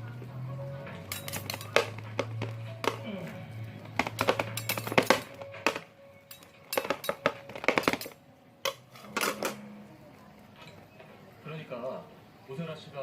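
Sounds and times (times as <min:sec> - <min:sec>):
hard objects clinking and knocking: 0:00.9 - 0:09.6.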